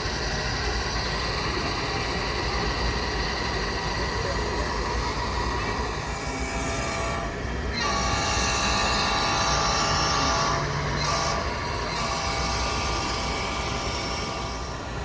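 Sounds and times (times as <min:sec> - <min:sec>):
exhibition hall hum: 0:00.0 - 0:15.0
model train horn chord: 0:07.1 - 0:13.3.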